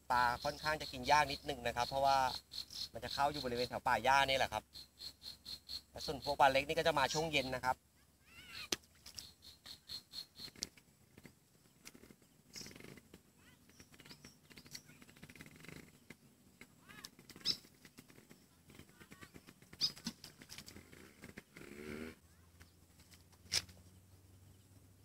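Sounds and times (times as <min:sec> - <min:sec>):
faint bird chirps: 0:00.0 - 0:21.6.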